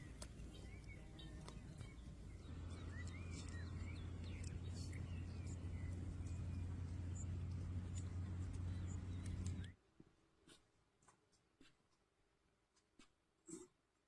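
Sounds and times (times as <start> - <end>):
steady low rumble: 0.0 - 9.7
small birds chirping: 0.0 - 9.8.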